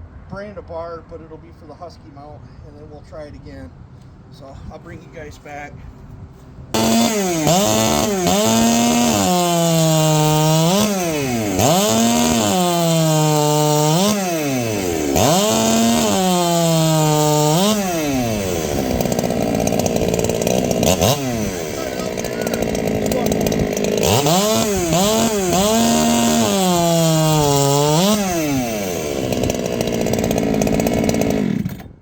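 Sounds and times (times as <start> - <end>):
chainsaw cutting: 6.8 - 32.0.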